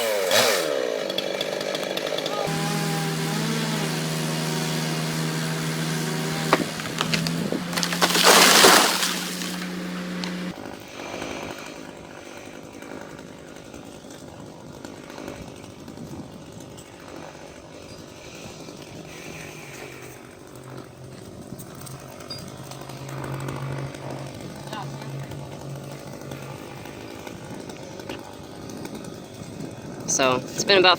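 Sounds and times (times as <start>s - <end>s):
chainsaw running: 0.0s - 30.9s
sharp wood cracks: 1.2s - 10.5s.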